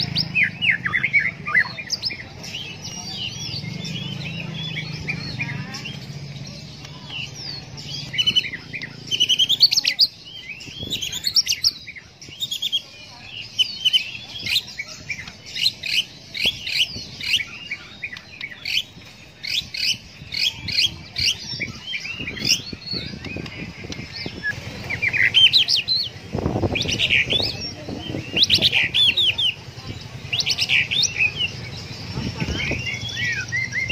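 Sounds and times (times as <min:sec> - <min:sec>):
bird singing rapid varied song: 0:00.0 - 0:33.9.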